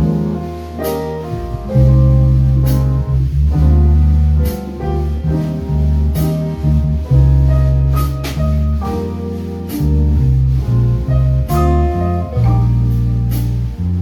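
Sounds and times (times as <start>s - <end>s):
low bass notes: 0.0s - 14.0s
piano chords: 0.0s - 14.0s.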